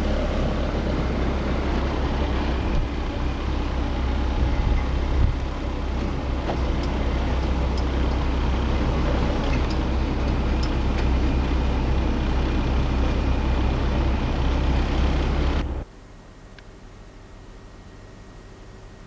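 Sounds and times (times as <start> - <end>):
engine and road noise rumble: 0.0 - 15.9
faint ticks: 6.4 - 8.3, 9.4 - 11.2.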